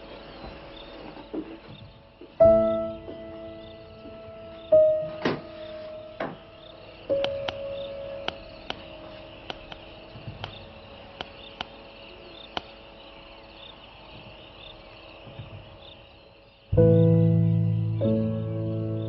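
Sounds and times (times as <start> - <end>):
insects chirring: 0.0 - 19.0
sharp clicks: 7.2 - 7.6, 8.2 - 10.6, 11.2 - 11.8.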